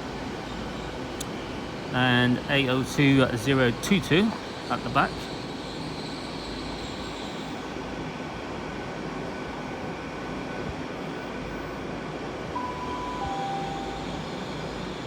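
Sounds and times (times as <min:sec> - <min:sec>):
train diesel engines humming: 0:00.0 - 0:15.0
public address chime: 0:12.6 - 0:15.0.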